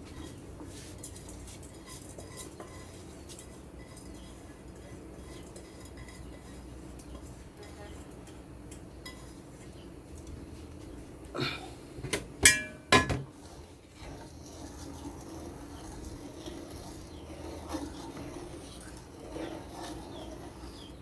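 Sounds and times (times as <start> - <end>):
metal cookware clattering: 12.0 - 13.5
pot lid ringing when struck: 12.4 - 13.2.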